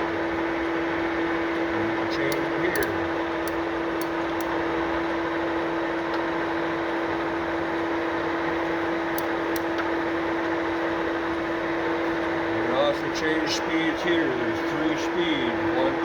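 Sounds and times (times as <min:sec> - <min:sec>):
lathe humming: 0:00.0 - 0:16.0.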